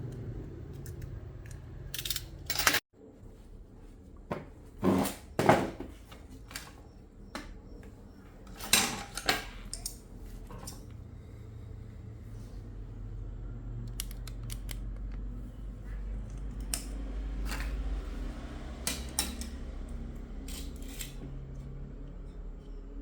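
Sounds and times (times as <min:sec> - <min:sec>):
metal tools clicking and clinking: 0:00.8 - 0:02.8, 0:08.5 - 0:10.9, 0:18.9 - 0:21.2.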